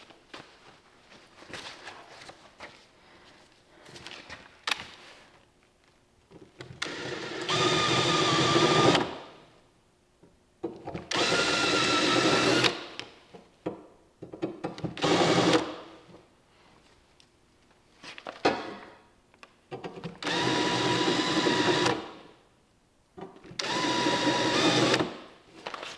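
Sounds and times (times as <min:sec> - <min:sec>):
small power tool motor: 0:06.8 - 0:09.1, 0:23.6 - 0:25.2.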